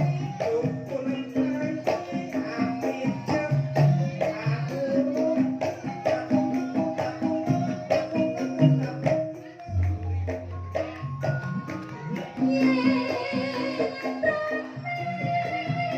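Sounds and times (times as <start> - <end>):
drum strokes: 0.0 - 15.9
struck metallophone notes: 2.3 - 15.1
gamelan ensemble playing: 3.5 - 15.1.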